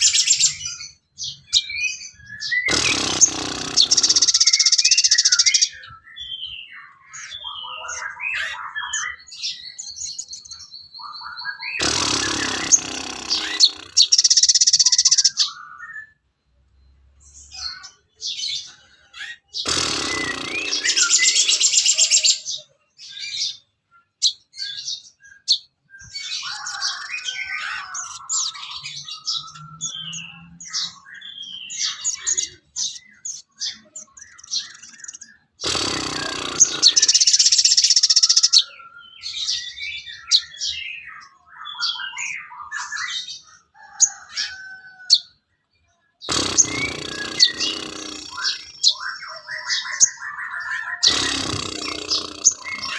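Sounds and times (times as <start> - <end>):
bird chattering bursts: 2.4 - 5.8, 11.6 - 15.6, 19.5 - 22.6, 31.7 - 38.7, 46.2 - 52.9.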